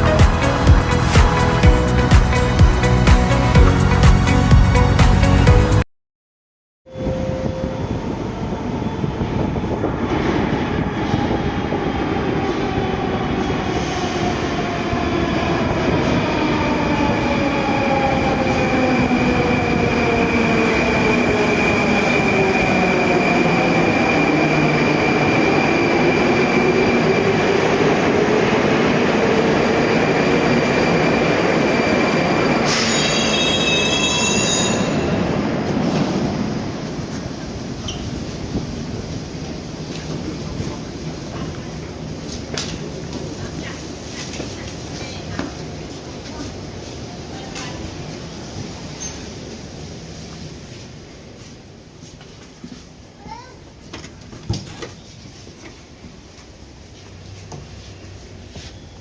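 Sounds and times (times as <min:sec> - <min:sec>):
metro train rumble: 0:00.0 - 0:05.8, 0:06.9 - 0:59.0
high wheel squeal: 0:31.9 - 0:35.3.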